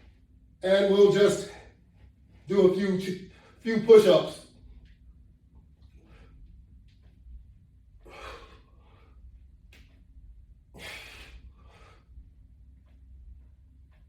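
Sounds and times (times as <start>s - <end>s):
man breathing hard: 7.9s - 9.5s, 10.7s - 12.4s.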